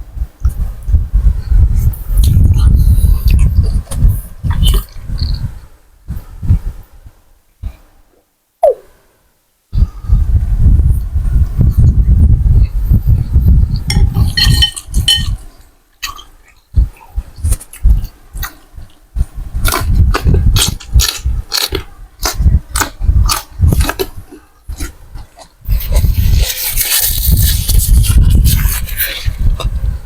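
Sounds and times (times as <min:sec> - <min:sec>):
chewing and mouth noises: 0:01.8 - 0:05.5, 0:13.4 - 0:29.9
utensil clinking against bowl: 0:13.9 - 0:15.4.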